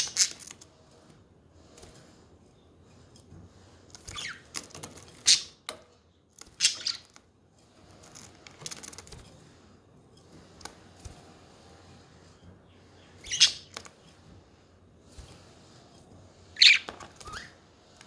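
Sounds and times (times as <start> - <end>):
budgerigars chirping: 6.6 - 7.1, 13.2 - 13.7, 16.6 - 17.5.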